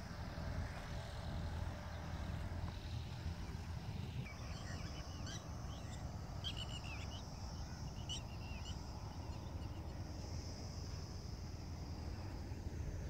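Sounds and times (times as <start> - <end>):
high-pitched insect drone: 0.0 - 13.0
small birds chirping: 1.8 - 10.1.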